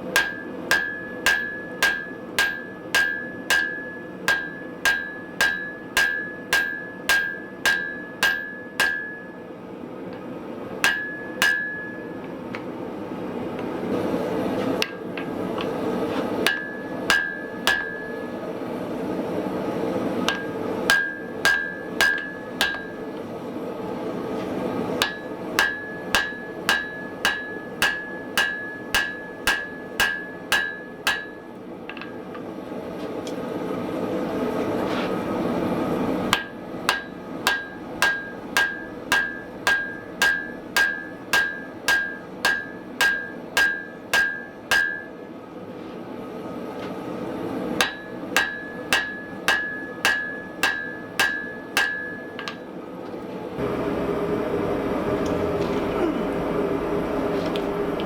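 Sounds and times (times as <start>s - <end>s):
hammer striking anvil: 0.1s - 9.4s, 10.8s - 12.2s, 16.4s - 18.3s, 20.3s - 23.2s, 25.0s - 32.2s, 36.3s - 45.3s, 47.8s - 52.7s.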